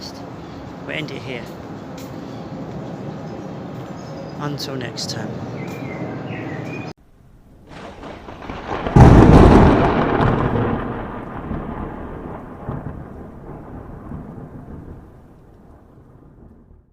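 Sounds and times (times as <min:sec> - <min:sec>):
thunderclap with rumble: 0:07.4 - 0:16.9.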